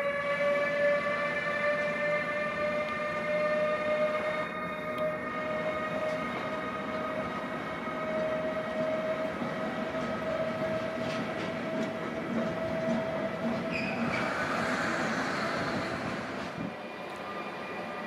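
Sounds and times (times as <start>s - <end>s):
locomotive whine: 0.0s - 18.0s
train wheels rumbling on rails: 0.0s - 18.0s
hissing rush: 14.1s - 16.6s.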